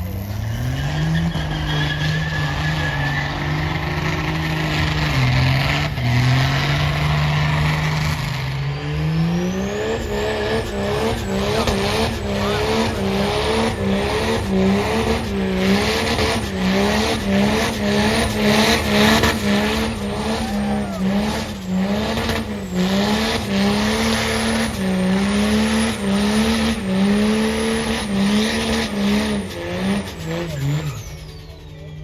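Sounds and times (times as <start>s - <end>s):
spinning tyres hissing: 0.0s - 32.0s
truck engine revving high: 0.0s - 32.0s.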